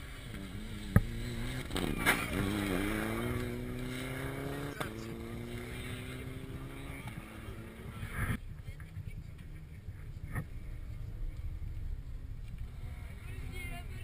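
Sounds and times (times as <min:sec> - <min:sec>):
rally car engine pulling hard: 0:00.0 - 0:08.4.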